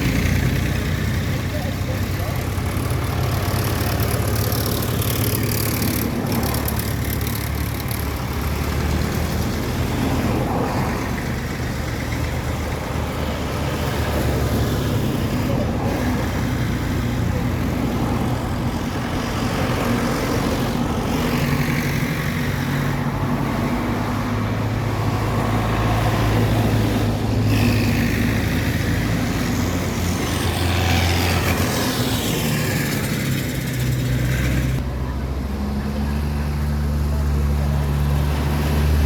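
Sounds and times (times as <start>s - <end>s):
tractor engines driving past: 0.0s - 39.0s.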